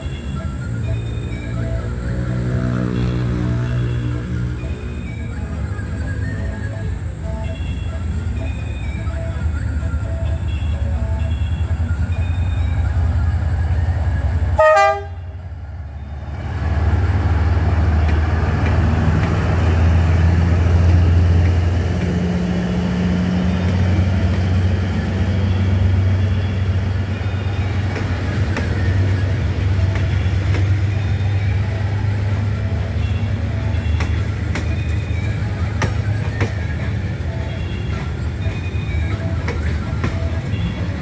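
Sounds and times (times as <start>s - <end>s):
locomotive engine rumble: 0.0s - 41.0s
train coaches rolling by: 0.0s - 41.0s
train horn blast: 14.6s - 15.4s.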